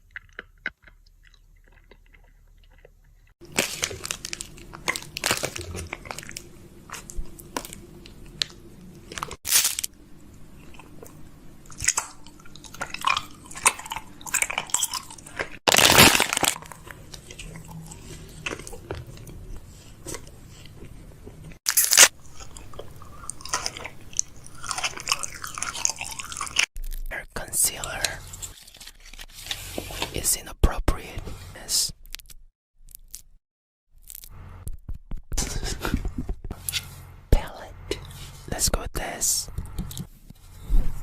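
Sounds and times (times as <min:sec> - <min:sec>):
small objects clicking and crackling: 0:32.0 - 0:33.3, 0:34.0 - 0:34.4.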